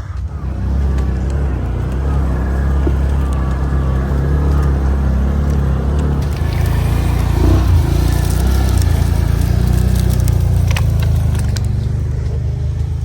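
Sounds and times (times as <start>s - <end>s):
atv engine under load: 0.0s - 13.0s.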